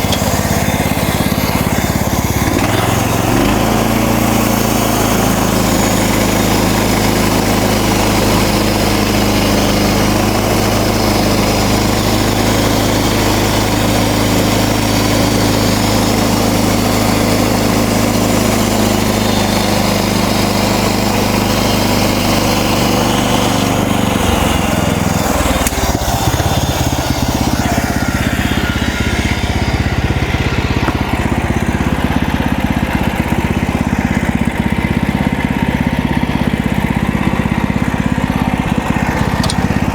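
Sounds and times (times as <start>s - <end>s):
saw blade hissing through log: 0.0s - 29.9s
gas engine running under load: 0.0s - 39.9s.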